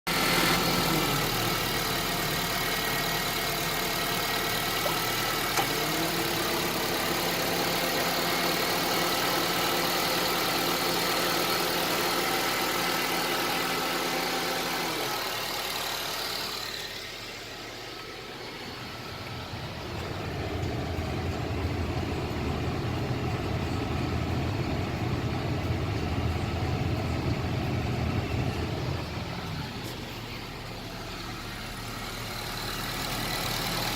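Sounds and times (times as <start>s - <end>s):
car engine idling: 0.1s - 33.9s
steady whining tones: 15.0s - 33.9s
low rough hum: 17.1s - 32.4s.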